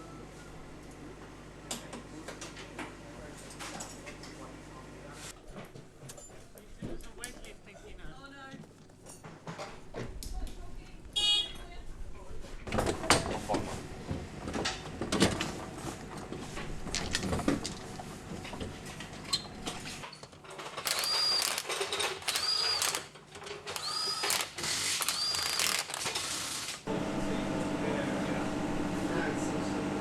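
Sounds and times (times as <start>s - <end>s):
whirring mechanism with whine: 20.8s - 23.0s, 23.7s - 26.0s.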